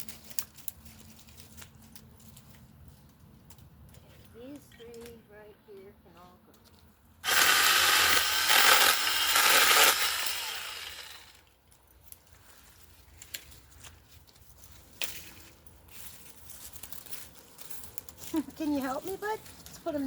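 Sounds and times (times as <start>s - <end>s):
chainsaw cutting branch: 7.2s - 11.4s.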